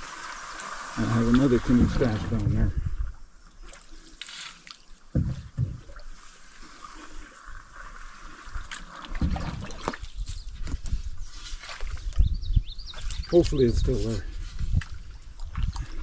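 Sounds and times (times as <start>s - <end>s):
paddle in water: 0.0s - 12.3s, 12.9s - 16.0s
low knocks on canoe: 5.1s - 6.1s, 9.2s - 9.9s.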